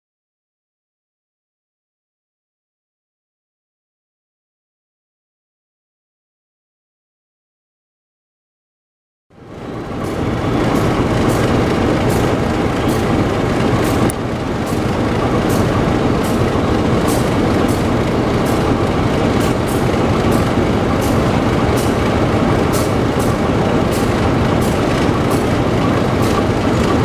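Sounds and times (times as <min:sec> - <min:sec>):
diesel engine rumble: 0:09.4 - 0:27.0
wheel clicks over rail joints: 0:10.8 - 0:27.0.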